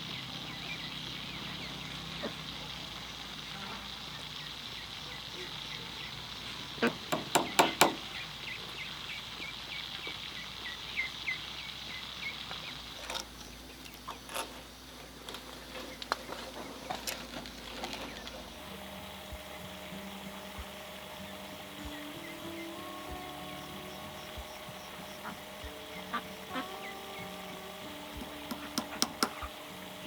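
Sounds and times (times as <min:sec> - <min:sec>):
insect buzzing: 0:00.0 - 0:14.9, 0:16.2 - 0:30.0
sharp knocks: 0:06.9 - 0:08.0
small chirps: 0:15.2 - 0:30.0.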